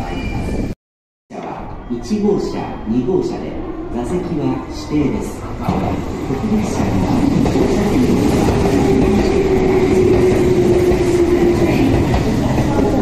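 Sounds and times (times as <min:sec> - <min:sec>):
train wheels rumbling on rails: 0:05.3 - 0:13.0.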